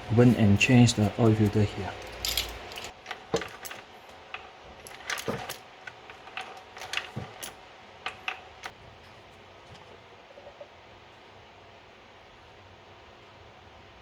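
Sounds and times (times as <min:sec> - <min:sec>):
metallic clinks of hand tools: 0:00.2 - 0:03.8.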